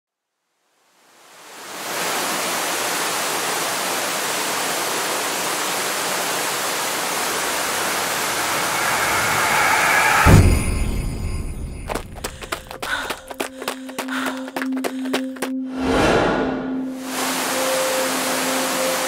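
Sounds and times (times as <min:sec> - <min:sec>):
waterfall rushing: 0:01.3 - 0:11.2, 0:17.0 - 0:19.0
deep thump: 0:10.1 - 0:11.6.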